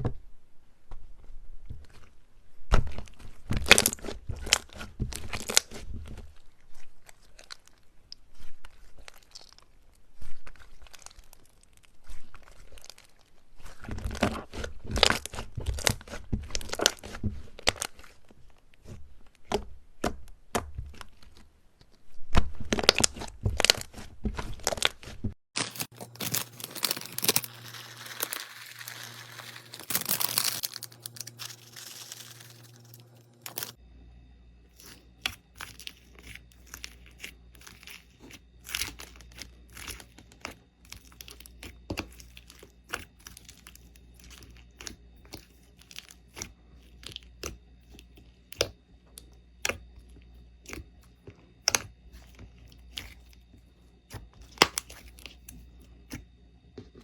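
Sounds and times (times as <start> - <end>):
slime crackling and popping: 25.6 - 33.8, 34.8 - 48.8, 51.6 - 53.5, 54.1 - 56.2
faint low hum: 25.9 - 57.0.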